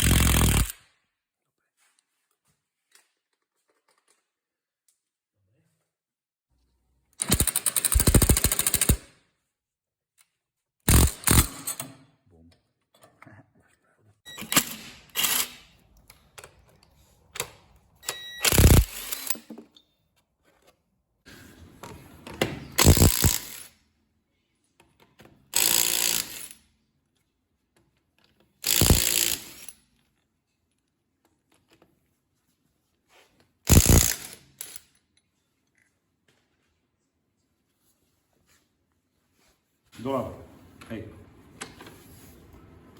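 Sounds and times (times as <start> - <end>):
impact wrench hammering: 0.0 - 0.7, 10.9 - 11.8, 28.7 - 29.7.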